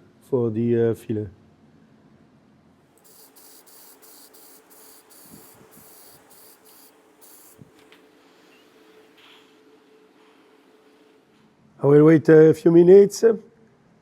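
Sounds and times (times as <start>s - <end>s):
spray hissing bursts: 3.0s - 7.8s.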